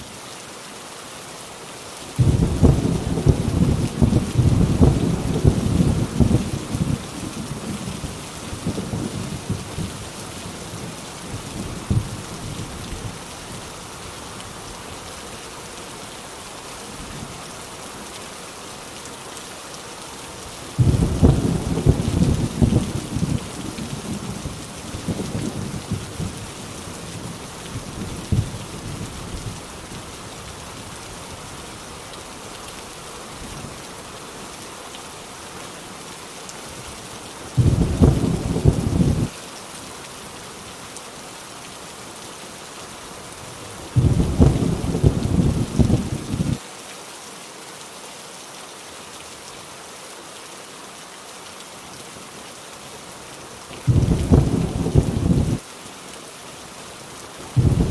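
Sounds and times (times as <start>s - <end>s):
heavy rain on a tin roof: 0.0s - 57.9s
thunder rumbling: 2.2s - 10.0s, 20.8s - 29.5s, 37.6s - 39.3s, 44.0s - 46.6s, 53.9s - 55.6s, 57.6s - 57.9s
loud thunderclap: 20.8s - 23.4s, 37.6s - 39.3s, 44.0s - 46.6s, 53.9s - 55.6s, 57.6s - 57.9s.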